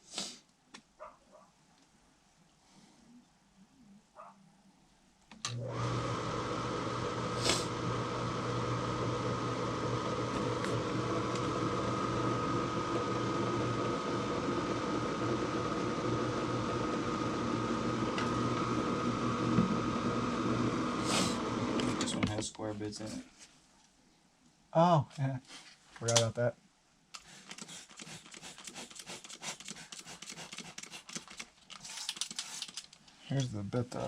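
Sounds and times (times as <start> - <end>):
machine motor humming and whining: 5.5 - 22.2.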